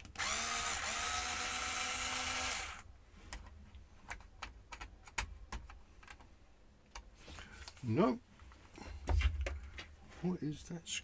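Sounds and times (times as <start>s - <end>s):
handheld power tool motor: 0.0s - 2.9s.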